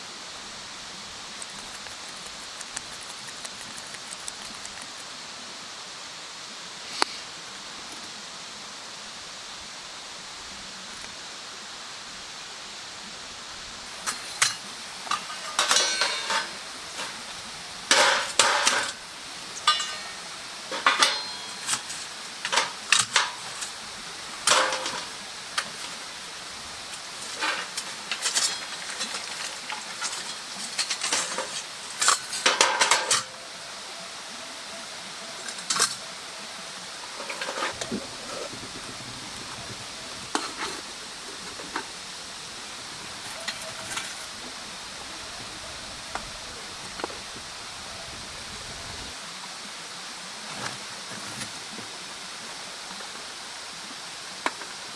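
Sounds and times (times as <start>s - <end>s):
steady hiss: 0.0s - 54.9s
metal cookware clinking and scraping: 14.1s - 17.2s, 19.6s - 23.5s, 24.5s - 25.1s.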